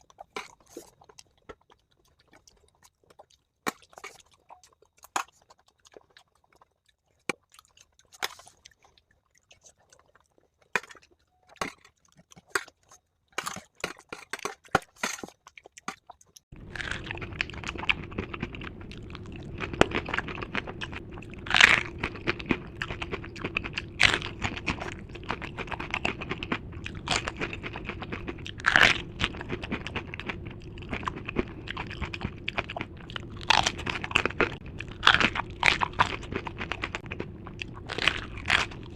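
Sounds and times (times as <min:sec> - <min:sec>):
crunchy food chewing: 0:00.0 - 0:38.9
low background hum: 0:16.5 - 0:38.9.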